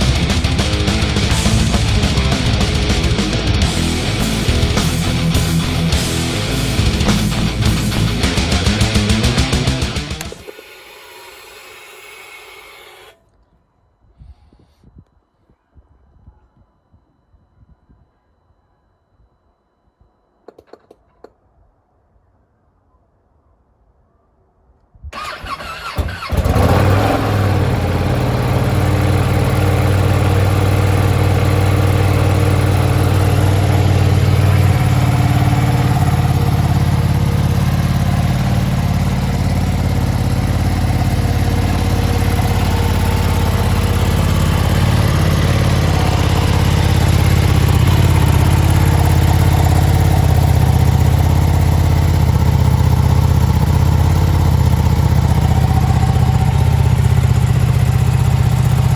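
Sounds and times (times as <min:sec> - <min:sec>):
motorcycle engine idling: 0:00.0 - 0:10.4, 0:25.2 - 0:58.9
starter cranking: 0:00.0 - 0:13.2, 0:25.2 - 0:57.2.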